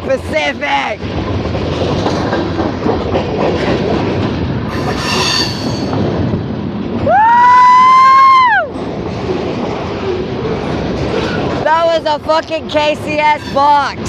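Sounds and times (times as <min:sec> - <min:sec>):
freight train wheels rumbling: 0:00.0 - 0:14.0
high wheel squeal: 0:04.7 - 0:06.0, 0:13.2 - 0:13.8.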